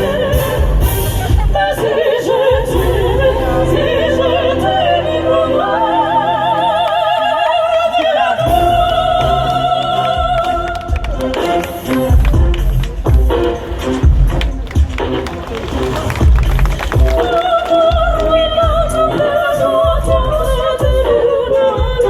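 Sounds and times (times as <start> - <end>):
sopranos singing in harmony: 0.0 - 12.2, 17.0 - 22.0
instrumental accompaniment: 8.4 - 22.0.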